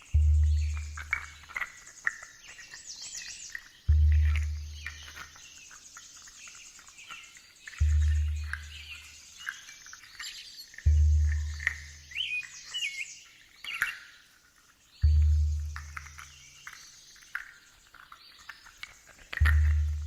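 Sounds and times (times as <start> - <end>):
deep slow drum beats: 0.0 - 1.6, 3.9 - 5.3, 7.8 - 9.3, 10.9 - 12.3, 15.0 - 16.6, 19.4 - 20.0
birdsong: 0.0 - 20.0
insects chirping: 0.0 - 20.0.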